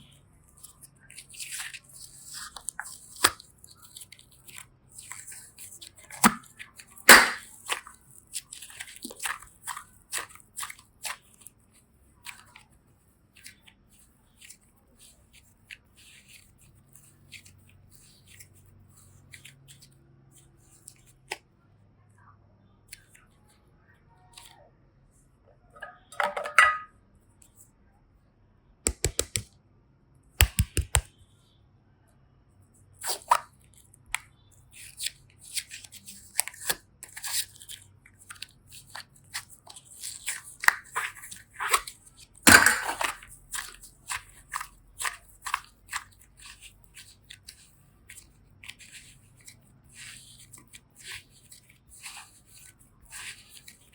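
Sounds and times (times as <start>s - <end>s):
clay and slime squishing: 0.0s - 21.7s, 22.6s - 26.2s, 28.9s - 29.5s, 30.4s - 31.3s, 32.6s - 53.9s
sharp clicks: 28.9s - 29.5s, 30.4s - 31.1s.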